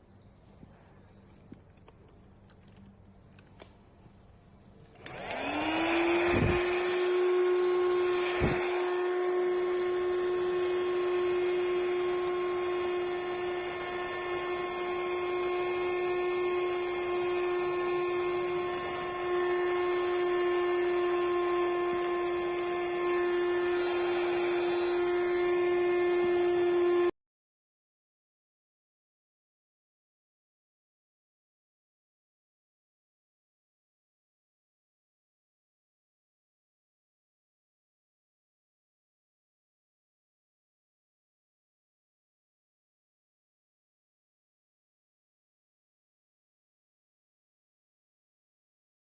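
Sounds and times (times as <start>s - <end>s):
vacuum cleaner motor whine: 4.8s - 27.2s.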